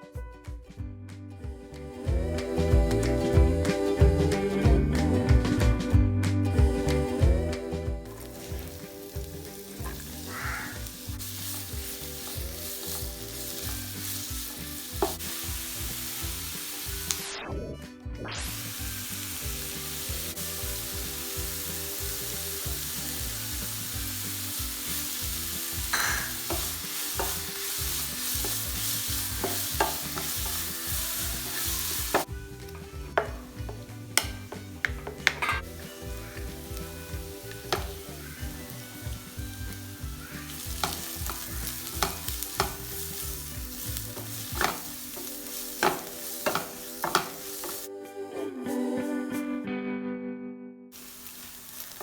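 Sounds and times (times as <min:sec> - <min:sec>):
food sizzling in oil: 0:07.2 - 0:17.3, 0:18.5 - 0:47.9, 0:51.0 - 0:52.0
utensil clicking against pan: 0:31.5 - 0:35.7, 0:40.6 - 0:43.0, 0:44.2 - 0:47.8.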